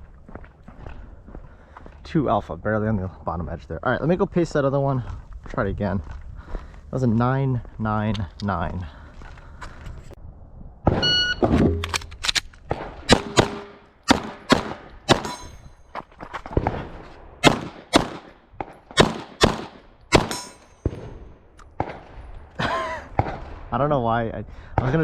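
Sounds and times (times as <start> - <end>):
pistol shots: 10.9 - 15.6, 16.5 - 22.2
shot timer beep: 11.0 - 11.5
steel targets ringing: 15.1 - 15.8, 20.2 - 21.0.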